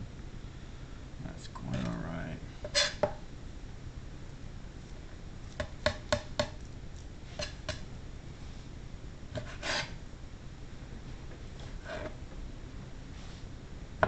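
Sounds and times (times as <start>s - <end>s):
knife scraping: 2.6s - 3.1s, 7.0s - 7.8s, 9.4s - 10.0s, 11.7s - 12.2s.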